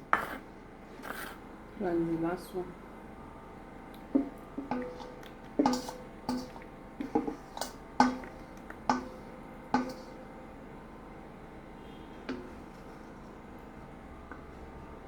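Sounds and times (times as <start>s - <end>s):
plates and lids clinking: 4.2s - 9.2s.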